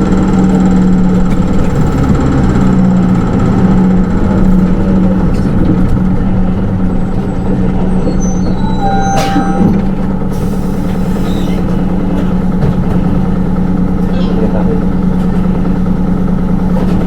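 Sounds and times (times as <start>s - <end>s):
bus diesel engine running: 0.0s - 17.0s
air brake hiss and squeal: 8.1s - 9.7s, 10.3s - 11.6s.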